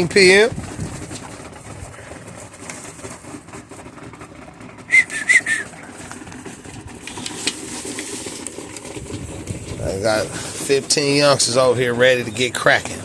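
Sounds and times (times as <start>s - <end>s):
rushing wind: 0.5s - 2.4s, 7.0s - 10.7s.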